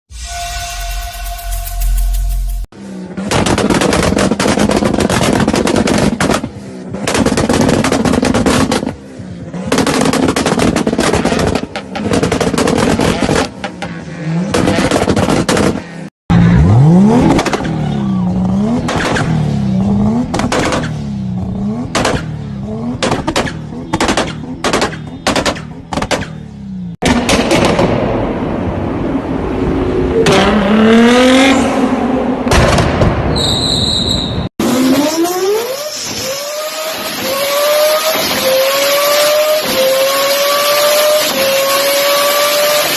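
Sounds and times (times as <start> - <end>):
car engine revving: 2.3 - 32.9, 34.6 - 42.9
car exhaust popping and crackling: 3.2 - 16.0, 17.0 - 17.9, 18.5 - 28.3.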